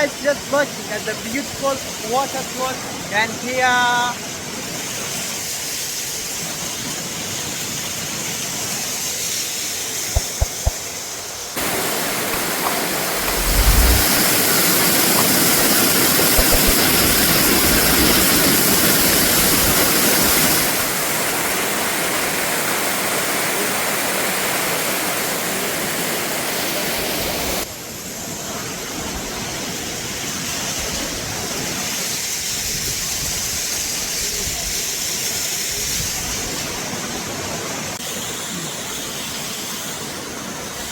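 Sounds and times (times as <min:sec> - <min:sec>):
waterfall roaring: 0:10.2 - 0:10.8, 0:11.6 - 0:23.4
low bumps: 0:12.3 - 0:14.3.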